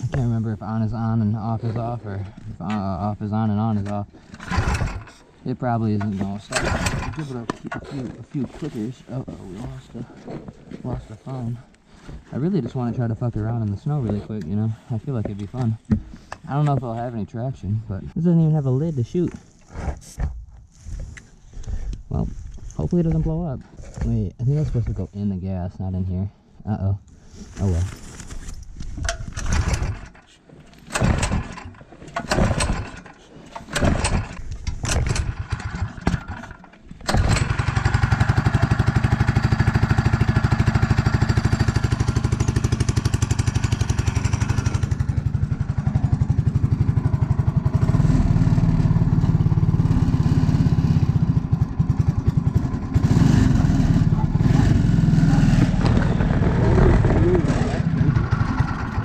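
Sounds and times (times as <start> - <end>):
small engine cranking and running: 4.2 - 8.1, 29.1 - 59.0.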